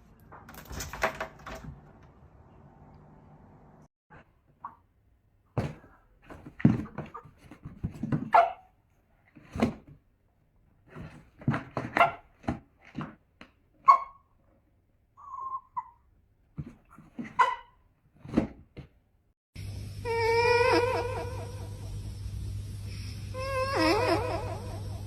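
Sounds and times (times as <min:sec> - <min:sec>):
dog barking: 0:08.3 - 0:08.7, 0:13.9 - 0:14.2, 0:17.4 - 0:17.8
dog whining: 0:20.0 - 0:21.7, 0:23.3 - 0:25.0.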